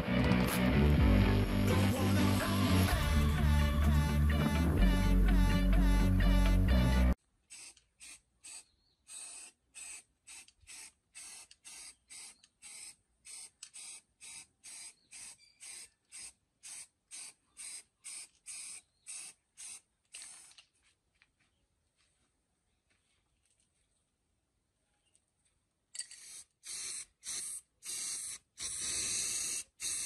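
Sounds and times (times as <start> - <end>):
spray nozzle hissing: 26.2 - 30.0.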